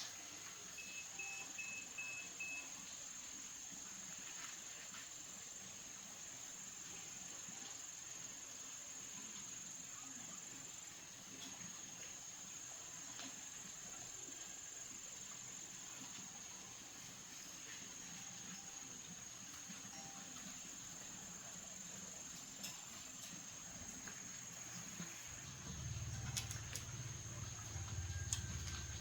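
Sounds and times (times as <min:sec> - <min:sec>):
faint clicks: 0:22.4 - 0:29.0.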